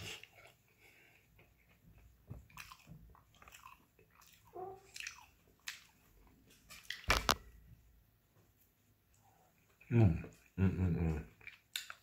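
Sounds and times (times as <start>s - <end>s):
person chewing: 0.0s - 7.4s, 10.3s - 12.0s
small clicks and crackles: 6.5s - 7.5s.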